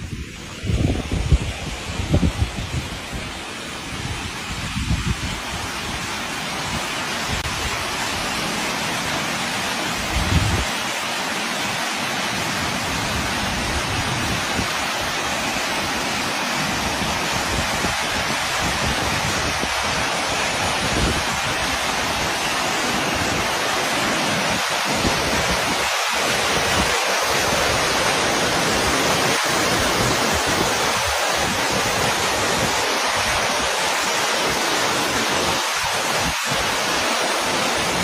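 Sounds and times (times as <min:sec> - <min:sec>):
floodwater rushing: 0:00.0 - 0:38.0.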